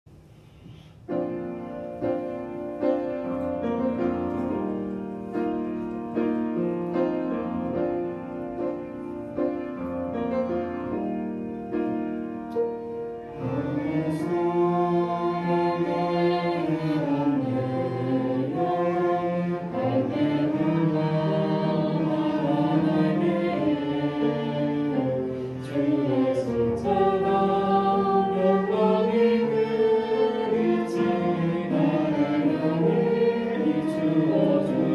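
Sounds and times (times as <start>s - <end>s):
orchestra playing slow worship music: 0.2s - 34.9s
choir singing: 13.3s - 34.9s.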